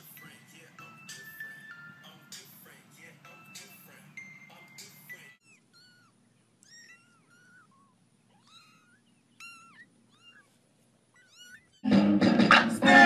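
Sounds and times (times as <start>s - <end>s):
cat mewing: 5.4s - 11.8s.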